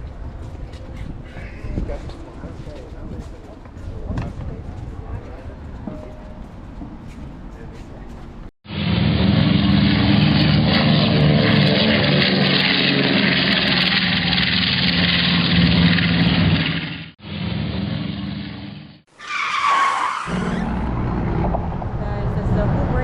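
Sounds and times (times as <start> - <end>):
road noise: 0.0 - 23.0
vehicle engine hum: 6.5 - 19.0
falling squeal: 19.1 - 21.0.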